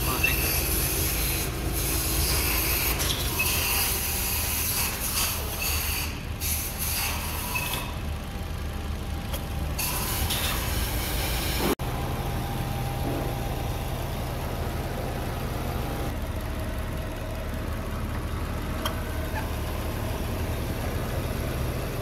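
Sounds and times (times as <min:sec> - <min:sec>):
car engine idling: 0:00.0 - 0:06.6, 0:07.2 - 0:22.0
brief high squeaks: 0:02.2 - 0:04.0, 0:04.8 - 0:08.0.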